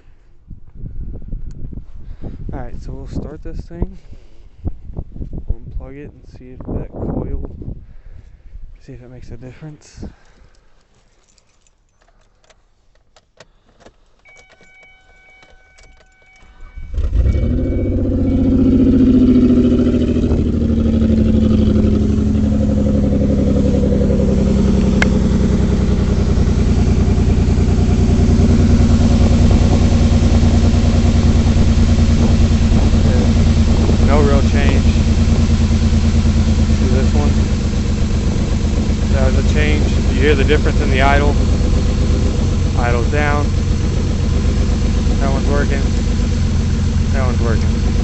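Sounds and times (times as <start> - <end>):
car engine starting and idling: 11.2 - 48.0
steady warning chime: 14.3 - 18.9.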